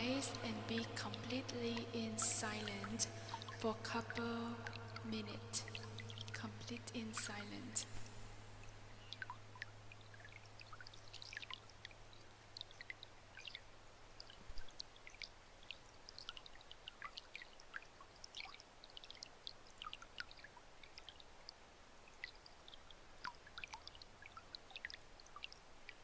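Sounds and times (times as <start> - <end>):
low hum: 0.0 - 10.2
water trickling: 0.0 - 26.0.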